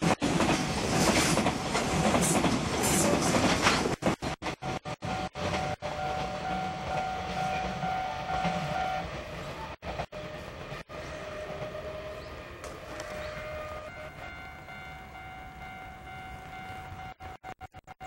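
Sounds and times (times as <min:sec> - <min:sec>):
freight train rumbling on track: 0:00.0 - 0:17.8
thin steady ringing tone: 0:13.0 - 0:18.0.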